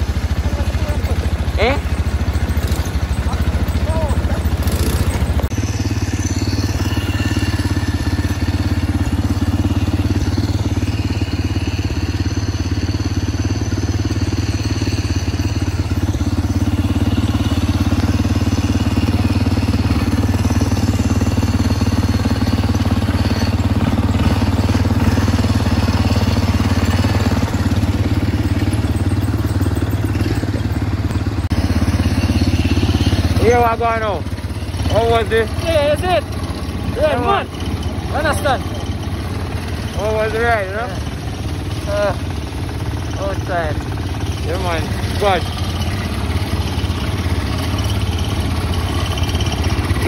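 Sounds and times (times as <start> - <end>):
dirt bike engine running: 0.0 - 50.0.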